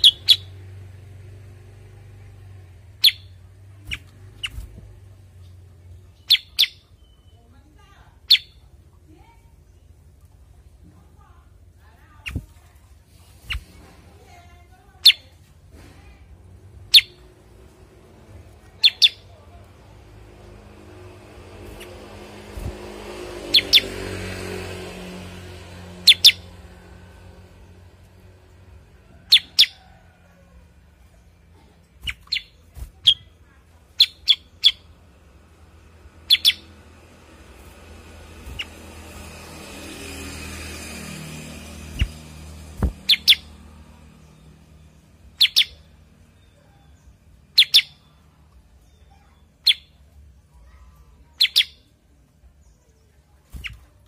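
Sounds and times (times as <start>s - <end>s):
bird giving sharp chirps: 0.0s - 0.7s, 2.9s - 7.5s, 8.2s - 8.7s, 16.8s - 17.3s, 18.7s - 19.4s, 21.0s - 24.4s, 25.9s - 26.7s, 31.9s - 35.0s, 36.2s - 37.0s, 37.8s - 39.7s, 40.4s - 48.2s, 49.2s - 50.0s, 51.2s - 51.9s.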